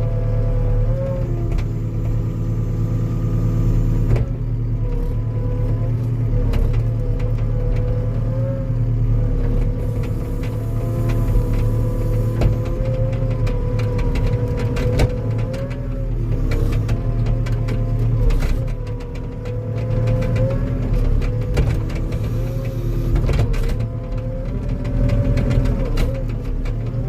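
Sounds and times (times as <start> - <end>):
tracked machine engine under load: 0.0 - 27.0.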